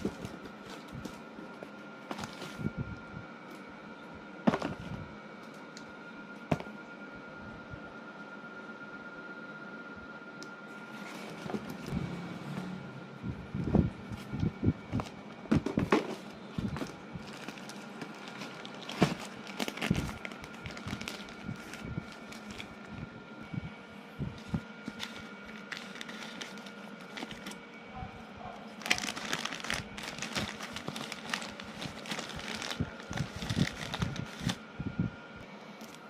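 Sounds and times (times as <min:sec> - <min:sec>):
crinkling and rustling: 0:00.0 - 0:02.8, 0:14.1 - 0:23.1, 0:24.2 - 0:27.6, 0:28.6 - 0:34.6.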